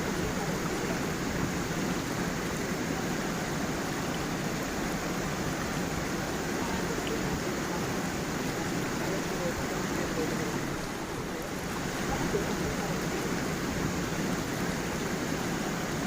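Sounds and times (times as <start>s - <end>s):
water running over small waterfall: 0.0s - 16.0s.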